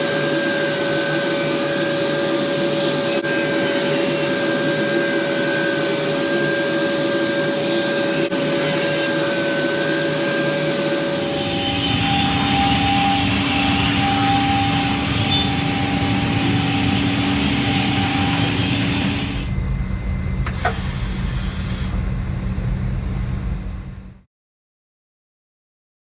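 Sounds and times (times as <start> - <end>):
panel saw machine running: 0.0 - 19.6.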